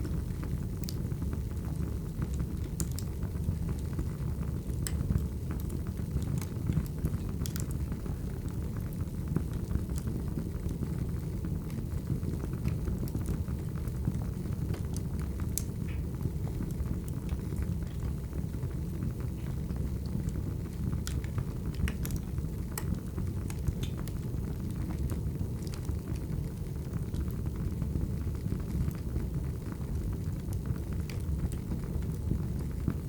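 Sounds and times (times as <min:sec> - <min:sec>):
wood fire burning: 0:00.0 - 0:33.0
logs crackling and popping: 0:12.5 - 0:33.0.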